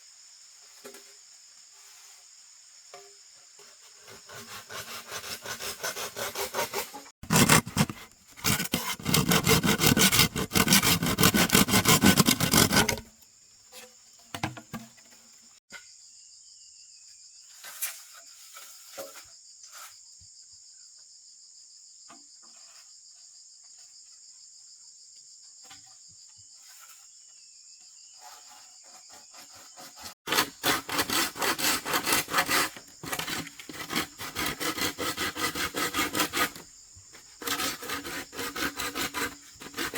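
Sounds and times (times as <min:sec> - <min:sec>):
hand saw cutting wood: 0:04.0 - 0:13.1, 0:28.2 - 0:39.9.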